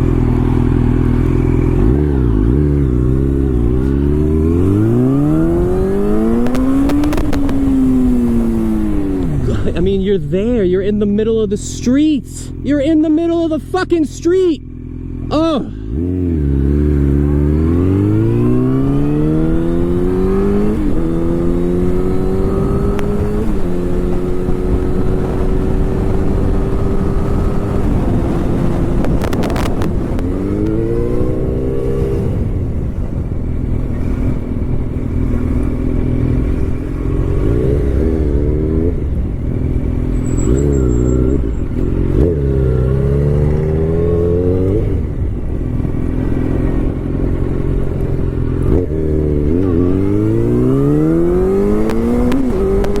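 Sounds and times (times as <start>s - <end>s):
motorcycle engine accelerating: 0.0s - 53.0s
wind rush on microphone: 17.5s - 40.3s, 41.4s - 53.0s.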